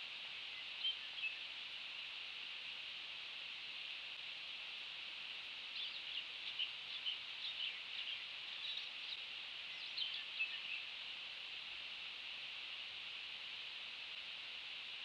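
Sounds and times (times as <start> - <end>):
steady high hiss: 0.0 - 15.0
small bird chirping: 5.8 - 10.9.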